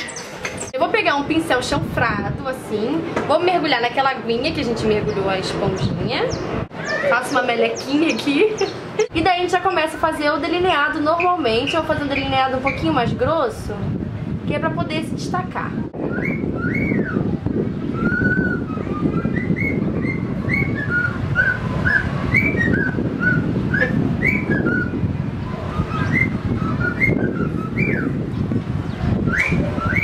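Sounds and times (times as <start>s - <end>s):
steady background noise: 0.0s - 30.0s
bird whistling chirps: 16.0s - 25.0s, 25.6s - 28.2s, 29.2s - 30.0s.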